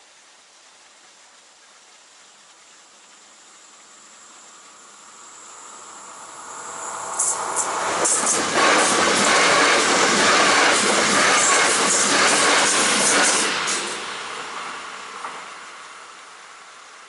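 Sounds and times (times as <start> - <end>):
electric train passing: 4.1 - 17.0.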